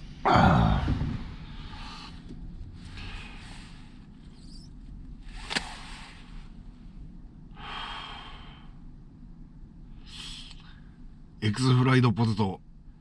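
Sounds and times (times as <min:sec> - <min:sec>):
low steady rumble: 0:00.0 - 0:13.0
person breathing heavily: 0:00.1 - 0:04.6, 0:05.2 - 0:06.8, 0:07.5 - 0:08.9, 0:09.9 - 0:11.1
sharp click: 0:05.4 - 0:05.8.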